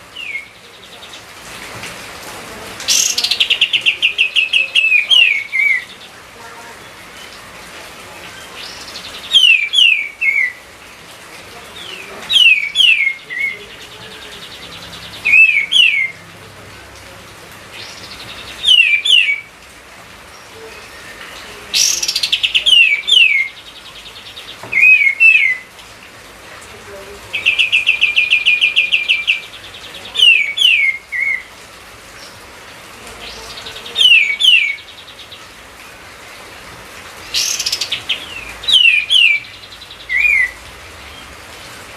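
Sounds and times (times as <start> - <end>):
bird trill: 8.6 - 10.6, 12.3 - 16.2, 17.8 - 19.4, 37.2 - 40.6
bird whistling phrases: 8.7 - 10.6, 15.3 - 16.2, 18.6 - 19.5, 24.7 - 25.7, 37.4 - 40.6.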